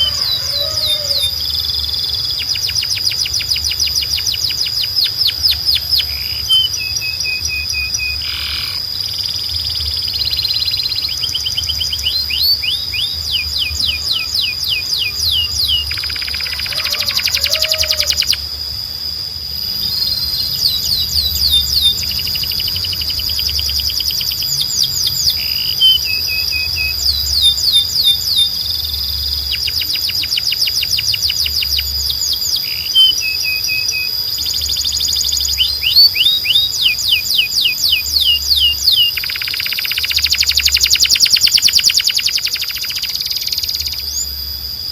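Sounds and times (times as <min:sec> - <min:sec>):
canary singing trills: 0:00.0 - 0:44.9
constant high tone: 0:00.0 - 0:44.9.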